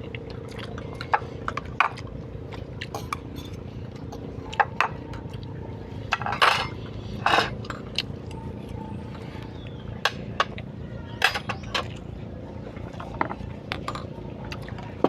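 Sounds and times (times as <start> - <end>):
steady low hum: 0.0 - 15.0
dishes and cutlery clinking: 6.1 - 8.0, 11.2 - 11.9.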